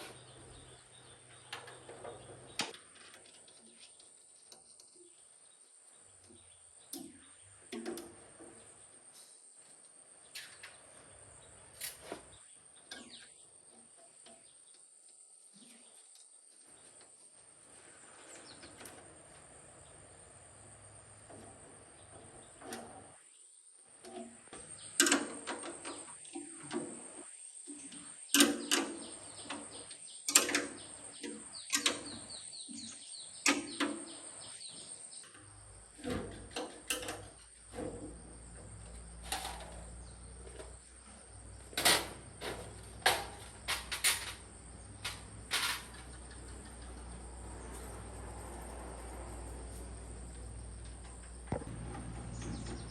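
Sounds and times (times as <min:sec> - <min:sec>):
crickets trilling: 0:00.0 - 0:52.9
metal tools knocking and clinking: 0:41.8 - 0:44.4.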